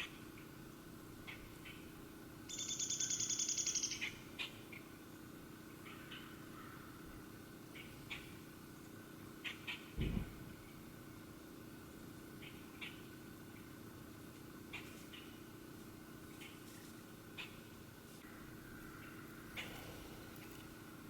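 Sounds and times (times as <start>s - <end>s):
songbird trilling and chirping: 2.5s - 4.6s
low thump: 10.0s - 10.5s.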